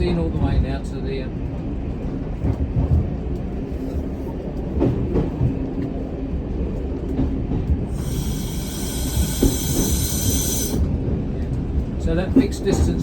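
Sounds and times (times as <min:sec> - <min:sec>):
diesel railcar rumble: 0:00.0 - 0:13.0
high squealing hiss: 0:07.9 - 0:10.9
wheel clicks over rails: 0:07.9 - 0:10.9.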